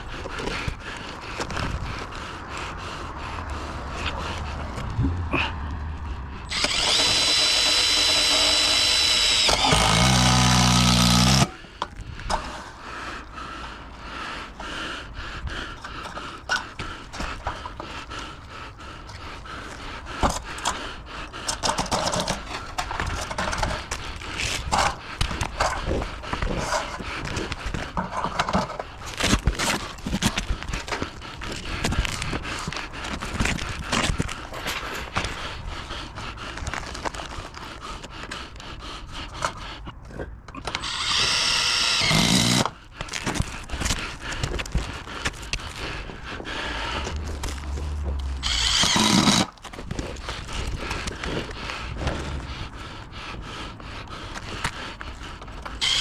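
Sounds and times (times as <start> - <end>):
power tool running: 6.5 - 11.5, 40.7 - 42.7, 48.4 - 49.5
hand work clicks and knocks on metal: 21.4 - 32.2.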